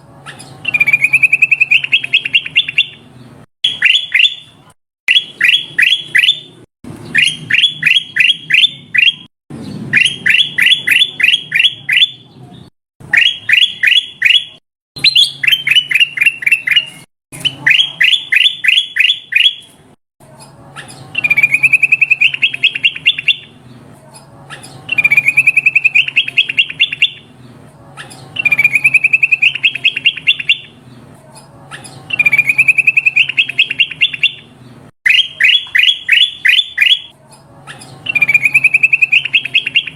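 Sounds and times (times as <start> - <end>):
bird calling in sharp notes: 0.4 - 3.0, 3.7 - 9.3, 13.0 - 19.7, 28.4 - 30.7, 35.1 - 37.1, 38.0 - 39.9.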